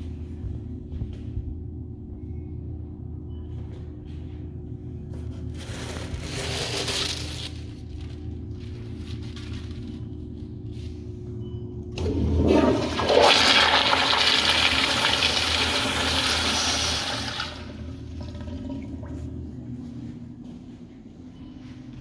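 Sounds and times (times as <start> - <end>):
toilet flushing: 11.9 - 19.9.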